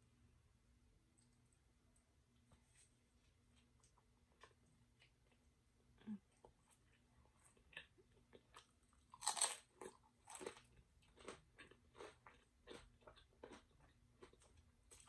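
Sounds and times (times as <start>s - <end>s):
crunchy chewing: 3.6s - 15.0s
chip bitten with loud crunch: 7.5s - 15.0s.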